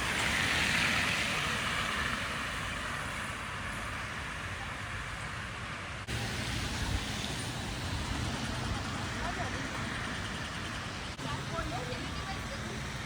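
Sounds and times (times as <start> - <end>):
passing road traffic: 0.0 - 13.0.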